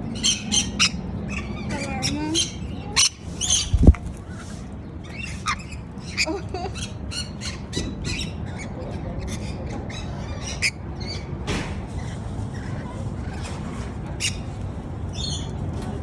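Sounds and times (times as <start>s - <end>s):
steady low rumble: 0.0s - 7.5s
parrots squawking: 0.1s - 11.3s.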